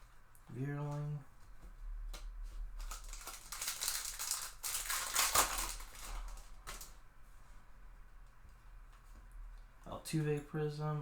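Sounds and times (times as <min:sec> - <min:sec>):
wrapper crinkling and rustling: 0:02.8 - 0:07.0.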